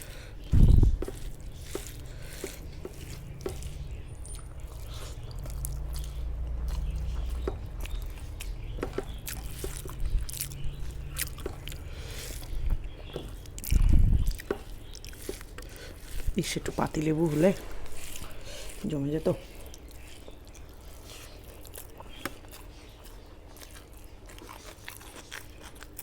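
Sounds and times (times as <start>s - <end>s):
person chewing wetly: 0.0s - 26.0s
low thud: 0.5s - 1.1s.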